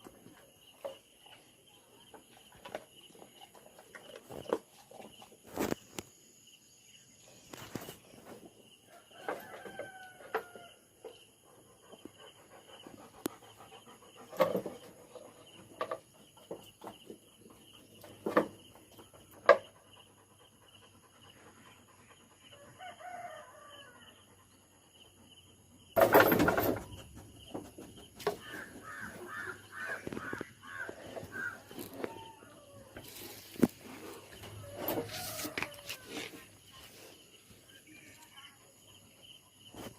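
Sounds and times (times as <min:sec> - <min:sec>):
rooster crowing: 0:09.2 - 0:10.8, 0:22.6 - 0:24.1, 0:34.5 - 0:36.1.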